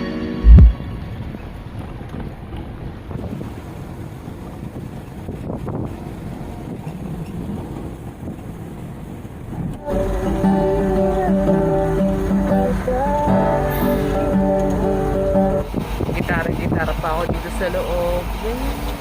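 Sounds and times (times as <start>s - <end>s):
low rumble: 0.4s - 3.0s
wind noise on microphone: 0.4s - 17.8s
guitar music: 9.8s - 16.6s.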